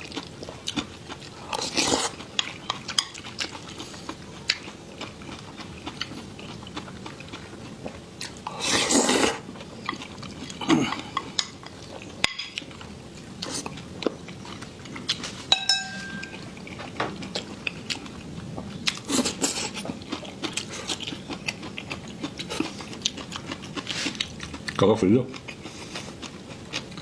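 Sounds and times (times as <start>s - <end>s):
ringing clink: 15.5s - 16.4s
utensils scraping against dishes: 15.5s - 16.6s.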